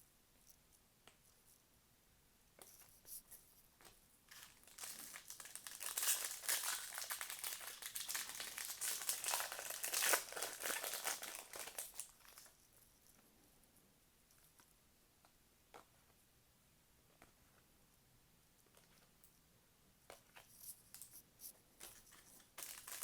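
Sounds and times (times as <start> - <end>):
foil wrapper crinkling: 4.3 - 12.5, 21.9 - 23.0.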